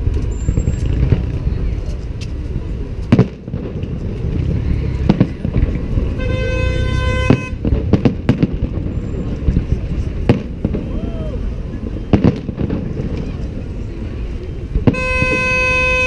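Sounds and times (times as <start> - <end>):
low rumble: 0.0 - 15.3
fireworks bangs: 0.0 - 16.0
horn steady note: 6.2 - 7.6, 14.9 - 16.0.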